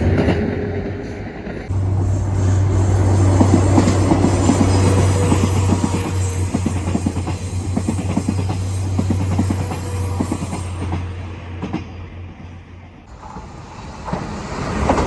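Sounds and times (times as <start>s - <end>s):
low train hum: 0.0s - 15.0s
train wheels clattering: 1.5s - 12.6s.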